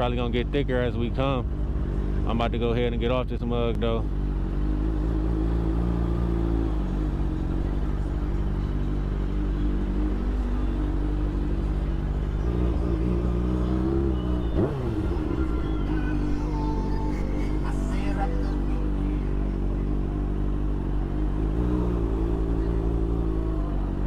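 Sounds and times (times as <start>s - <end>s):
vehicle engine idling: 0.0s - 24.0s
falling pitch sweep: 13.8s - 18.8s.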